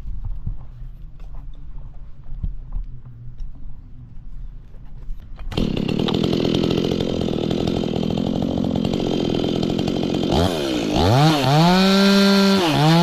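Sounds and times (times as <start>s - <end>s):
chainsaw idling and revving: 5.5s - 13.0s.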